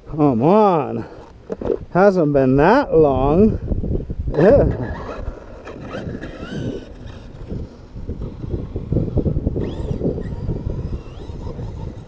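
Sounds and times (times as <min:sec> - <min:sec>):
wind buffeting microphone: 0:01.0 - 0:12.0
electric motor whining: 0:04.3 - 0:12.0.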